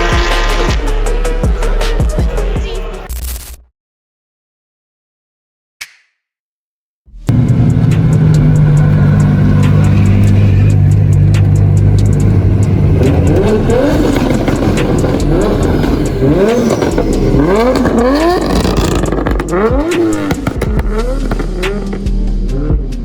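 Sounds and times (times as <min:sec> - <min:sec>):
car engines revving: 0:07.3 - 0:23.0.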